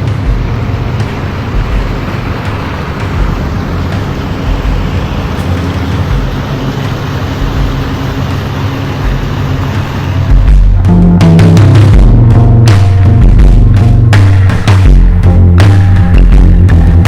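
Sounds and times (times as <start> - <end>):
jet ski engine running: 0.0 - 17.0
rushing wind: 0.0 - 17.0
water noise: 0.0 - 17.0.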